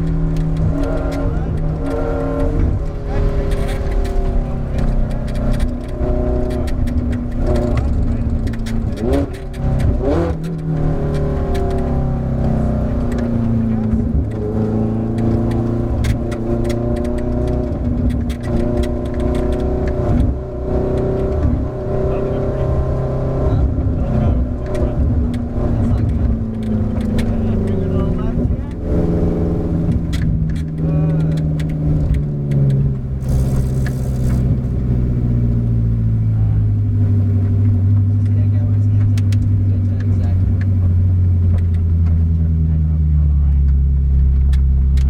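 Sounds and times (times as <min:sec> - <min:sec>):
sharp clicks and clunks: 0:00.0 - 0:21.7, 0:23.7 - 0:34.8, 0:37.4 - 0:42.5, 0:43.5 - 0:45.0
race car engine running: 0:00.0 - 0:45.0.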